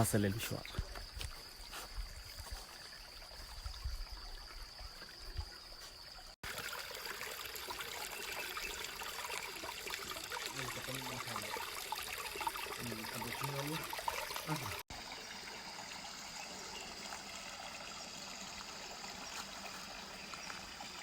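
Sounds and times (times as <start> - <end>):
stream water trickling: 0.0 - 21.0.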